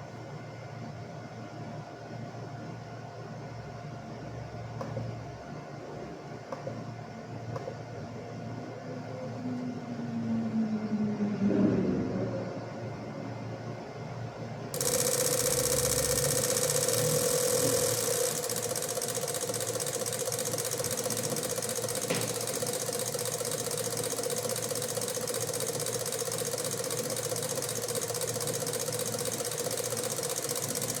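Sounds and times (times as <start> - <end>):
radiator cooling fan whirring: 13.7 - 31.0.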